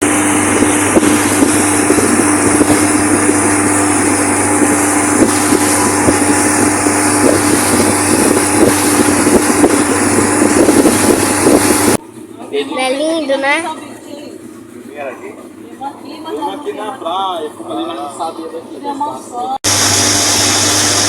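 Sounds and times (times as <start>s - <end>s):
rushing water noise: 0.0s - 12.0s, 19.6s - 21.0s
wind buffeting microphone: 0.0s - 12.0s
motorboat engine running: 0.0s - 21.0s.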